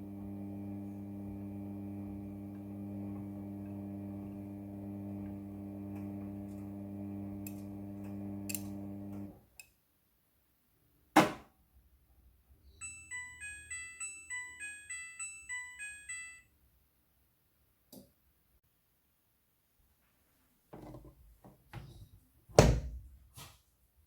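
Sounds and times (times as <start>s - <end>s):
washing machine motor hum: 0.0s - 9.4s.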